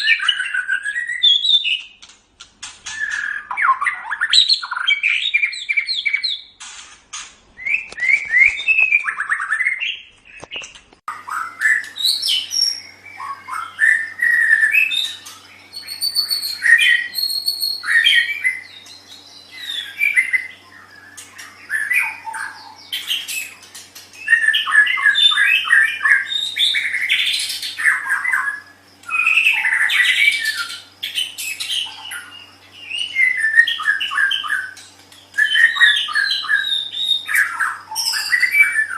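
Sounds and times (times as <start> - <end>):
faint steady hum: 0.0 - 38.9
songbird singing varied phrases: 11.1 - 23.6, 24.2 - 38.9.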